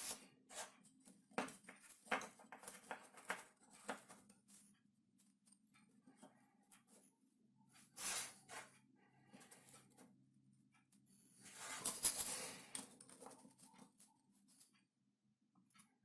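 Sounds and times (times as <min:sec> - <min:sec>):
loud scrape: 0:08.0 - 0:08.7
scratching and rustling: 0:11.4 - 0:14.7.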